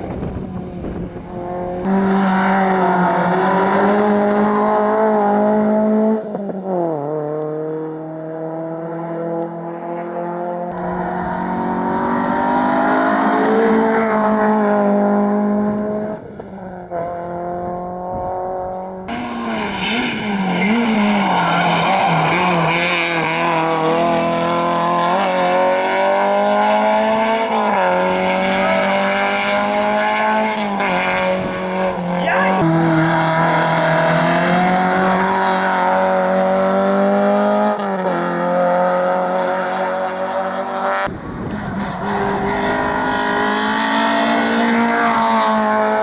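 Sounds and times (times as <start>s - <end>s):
rally car engines revving: 0.0s - 46.0s
tyres squealing: 19.1s - 23.2s.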